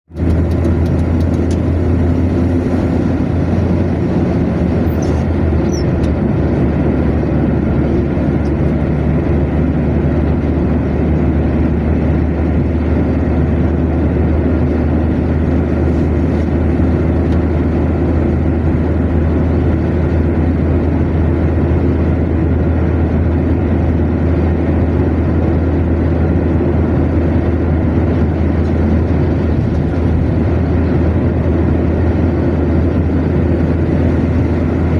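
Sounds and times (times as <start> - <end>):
car engine drone: 0.0 - 34.9
tyre road noise: 0.0 - 34.9.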